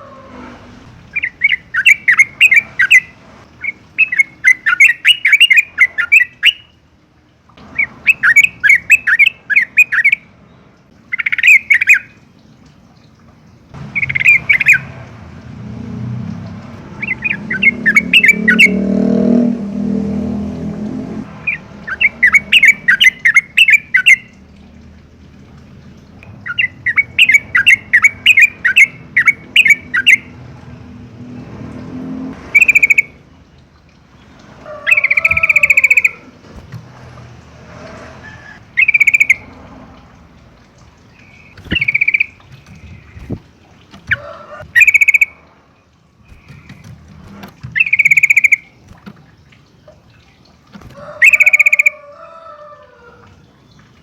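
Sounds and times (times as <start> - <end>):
bulbul singing: 1.0 - 6.9, 7.6 - 12.6, 13.5 - 15.5, 16.3 - 24.8, 25.8 - 31.0, 32.4 - 33.6, 34.8 - 36.8, 38.6 - 39.6, 41.0 - 49.5, 50.8 - 52.1.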